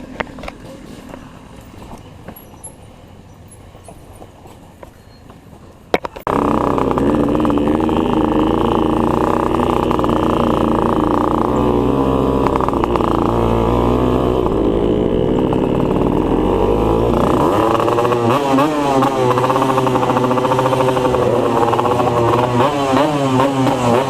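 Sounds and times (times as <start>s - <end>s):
two-stroke motorcycle engine running: 6.3s - 24.0s.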